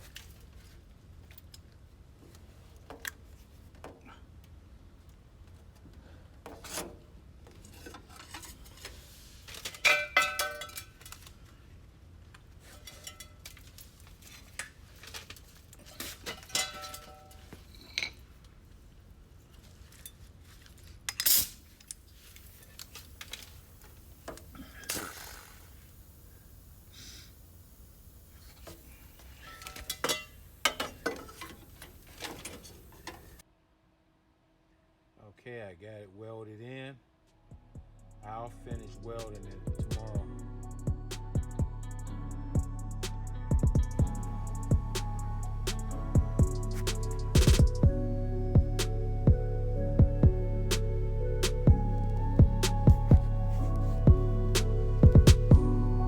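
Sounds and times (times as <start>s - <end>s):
low steady hum: 0.0s - 56.0s
metal tools clinking: 7.7s - 11.3s, 12.6s - 18.3s, 28.5s - 33.4s.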